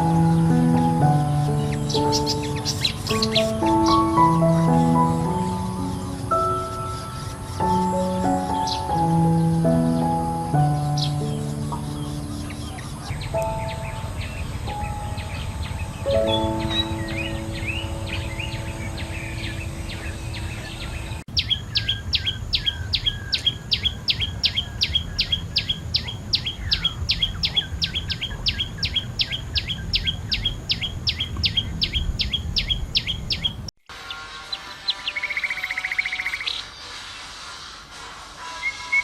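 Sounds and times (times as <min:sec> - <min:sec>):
low rumbling noise: 0:00.0 - 0:23.3
bird chirps: 0:00.0 - 0:37.7
fast bird trill: 0:01.3 - 0:37.3.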